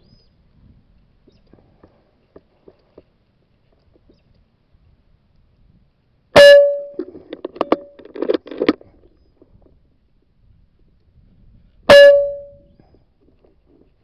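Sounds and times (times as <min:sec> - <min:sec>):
irregular clatter: 0:06.6 - 0:09.7.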